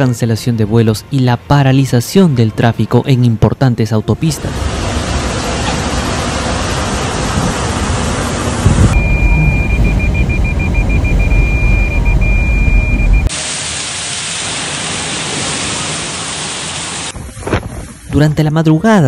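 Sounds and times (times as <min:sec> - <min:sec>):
flood water rushing: 0:04.4 - 0:09.7, 0:13.3 - 0:17.5
deep rumble: 0:04.4 - 0:13.3
rain hissing: 0:04.5 - 0:12.1, 0:12.7 - 0:18.1
thin high beep: 0:09.0 - 0:13.3.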